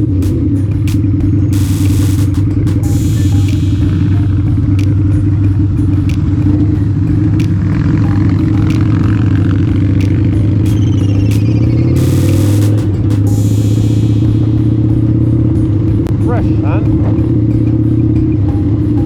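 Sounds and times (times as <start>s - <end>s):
motorcycle engine running: 0.0s - 19.0s
sharp clicks: 0.2s - 14.0s.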